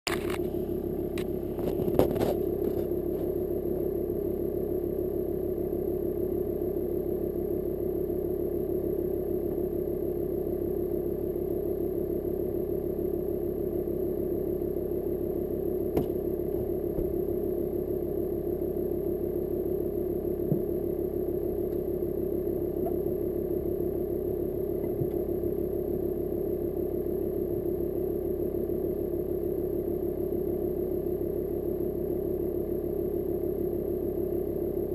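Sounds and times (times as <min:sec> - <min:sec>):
diesel engine idling: 0:00.1 - 0:06.5, 0:13.6 - 0:28.4.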